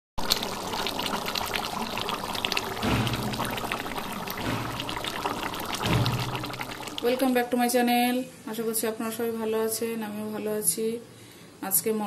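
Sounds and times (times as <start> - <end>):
curry bubbling in a pot: 0.2 - 7.5.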